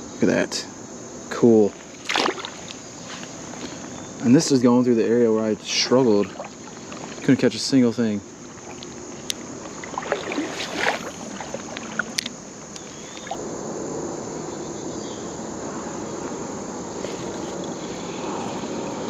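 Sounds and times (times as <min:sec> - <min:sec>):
high insect trill: 0:00.0 - 0:19.0
water sloshing and splashing: 0:01.8 - 0:03.3, 0:05.7 - 0:13.4.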